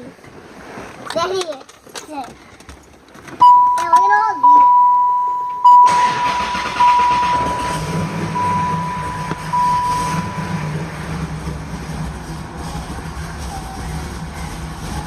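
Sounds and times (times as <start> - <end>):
car electronic warning chime: 3.4 - 11.2
car engine idling: 4.6 - 15.0.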